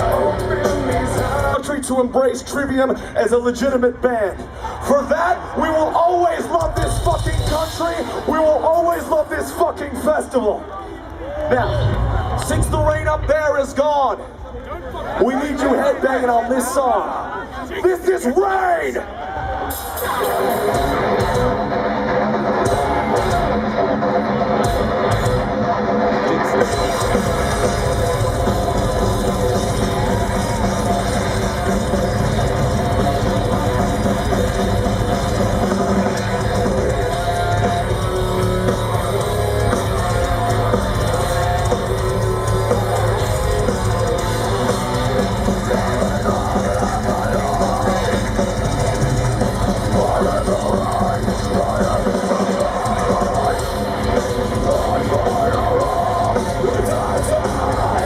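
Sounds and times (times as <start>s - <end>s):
drum kit: 0.0s - 1.9s, 6.4s - 9.1s, 19.6s - 58.0s
distorted electric guitars: 0.0s - 14.5s, 19.3s - 58.0s.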